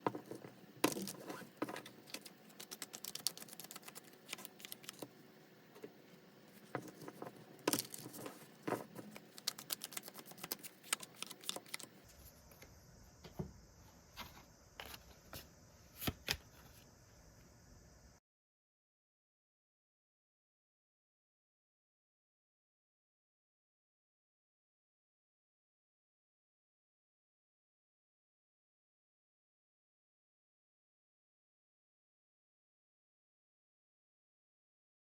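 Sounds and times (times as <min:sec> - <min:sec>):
cards being shuffled: 0:00.3 - 0:05.1, 0:06.6 - 0:12.0.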